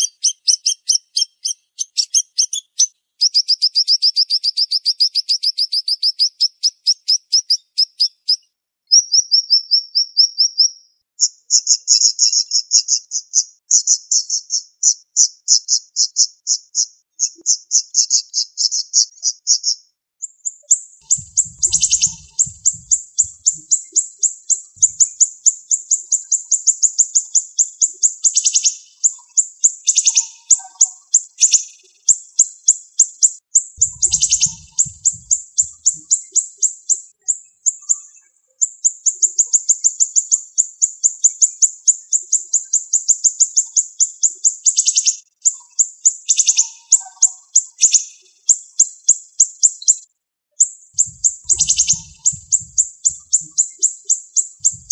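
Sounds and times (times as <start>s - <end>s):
low thuds: 21.1s - 23.7s, 24.8s - 25.1s, 33.8s - 36.0s, 51.0s - 53.5s, 54.6s - 54.9s
songbird singing high notes: 21.1s - 23.8s, 33.8s - 36.2s, 51.0s - 53.8s.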